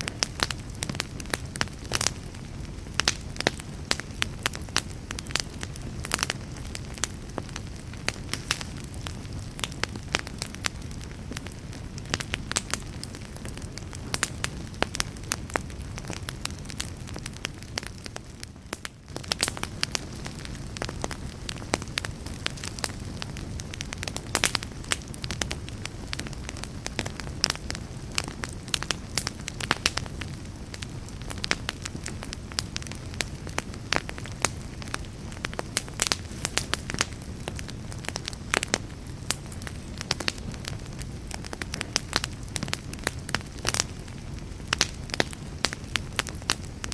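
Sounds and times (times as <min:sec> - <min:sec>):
campfire crackling and popping: 0:00.0 - 0:46.9
low rumble of flames: 0:00.0 - 0:46.9.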